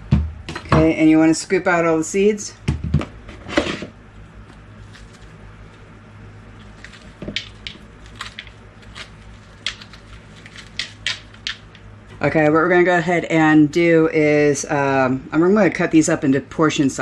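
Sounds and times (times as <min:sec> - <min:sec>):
scraping squash seeds: 0:03.3 - 0:12.1.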